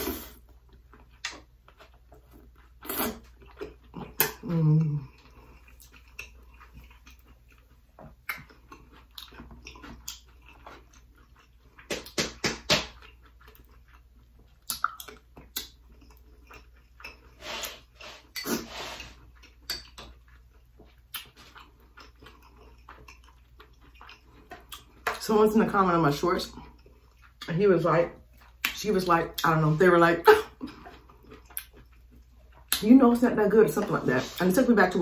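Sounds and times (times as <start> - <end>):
wet chewing mouth smacks: 0.7 - 4.5, 5.2 - 17.4, 19.2 - 25.2, 30.7 - 32.9.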